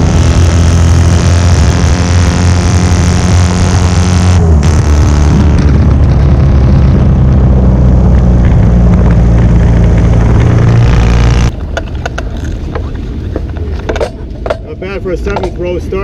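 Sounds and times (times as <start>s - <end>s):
racing engine running loud: 0.0s - 11.5s.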